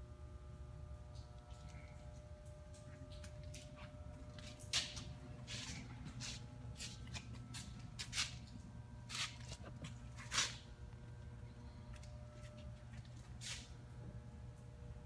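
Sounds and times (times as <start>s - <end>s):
steady low hum: 0.0s - 15.0s
footsteps scuffing: 2.9s - 10.7s.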